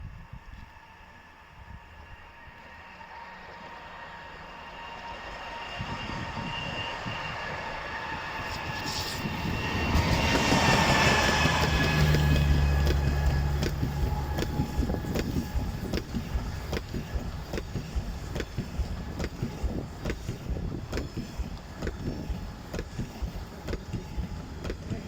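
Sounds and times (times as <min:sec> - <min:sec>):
train passing with whine: 0:00.0 - 0:25.0
wheels clicking over rail joints: 0:09.8 - 0:25.0.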